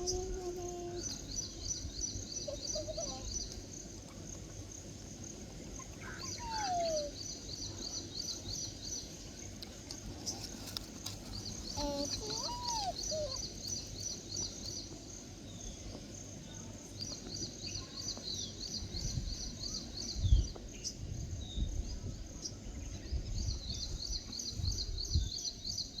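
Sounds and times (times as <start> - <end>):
birds chirping: 0.0 - 5.0, 5.6 - 16.2
low rumble on microphone: 20.2 - 25.6.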